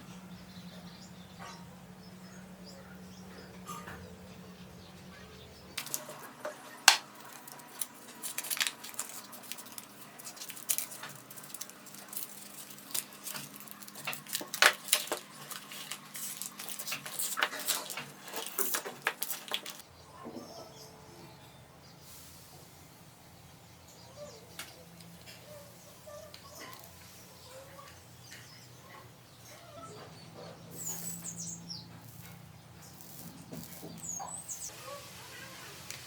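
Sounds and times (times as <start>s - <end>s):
small hard objects clicking: 5.8s - 6.2s, 6.9s - 19.8s, 32.0s - 34.6s.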